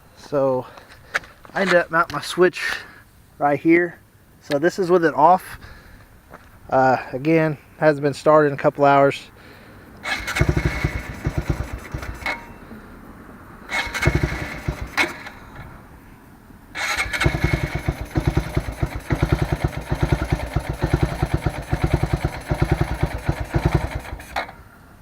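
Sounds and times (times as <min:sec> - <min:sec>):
motorcycle engine cranking: 0:10.0 - 0:12.6, 0:13.7 - 0:15.8, 0:16.8 - 0:24.7.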